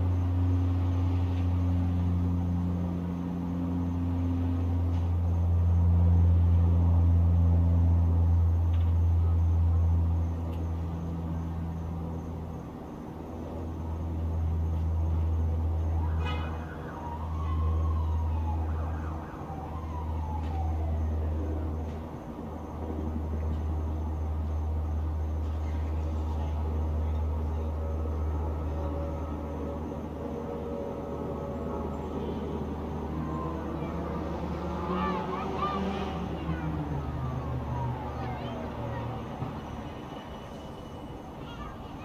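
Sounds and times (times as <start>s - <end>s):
low rumble of distant traffic: 0.0s - 42.0s
distant siren falling in pitch: 14.5s - 25.6s, 26.5s - 42.0s.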